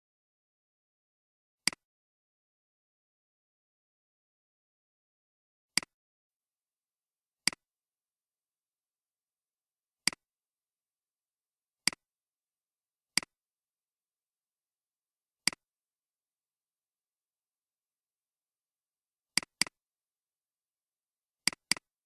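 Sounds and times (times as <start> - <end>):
computer mouse button clicking: 19.4 - 19.8, 21.5 - 21.9.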